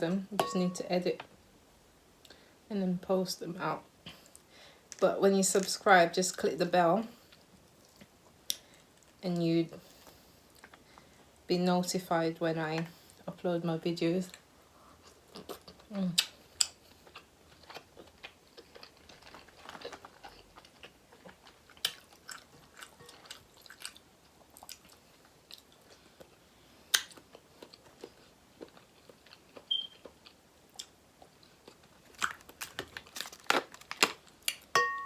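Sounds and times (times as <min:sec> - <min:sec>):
chewing and crunching seafood: 0:14.9 - 0:34.7.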